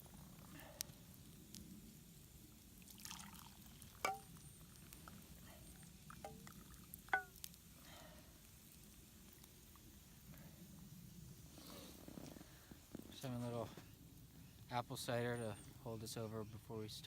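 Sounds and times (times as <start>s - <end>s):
liquid pouring: 2.8s - 5.2s, 6.0s - 7.5s
light clinks of cookware: 4.0s - 4.4s, 7.1s - 7.5s.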